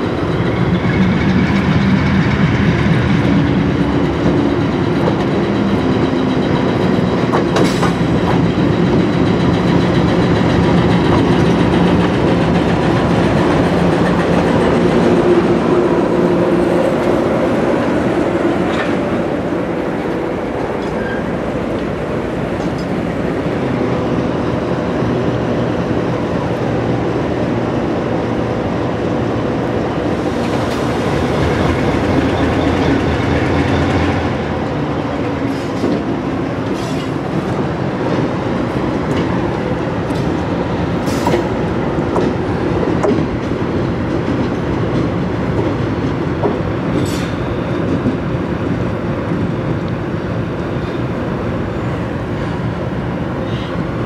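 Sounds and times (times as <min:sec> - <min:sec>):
diesel locomotive engine: 0:00.0 - 0:54.0.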